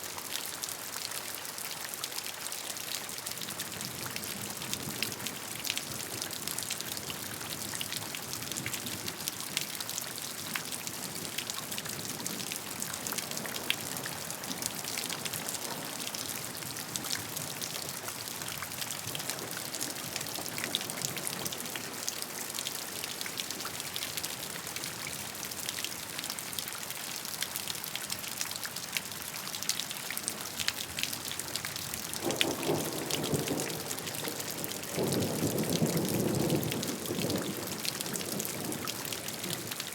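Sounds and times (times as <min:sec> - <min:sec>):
steady rain falling: 0:00.0 - 0:39.9
low rumble of thunder: 0:32.2 - 0:39.7.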